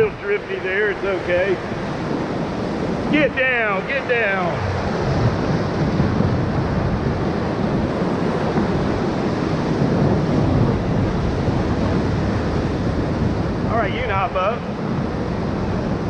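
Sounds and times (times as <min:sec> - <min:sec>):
whitewater rapids rushing: 0:00.0 - 0:16.0.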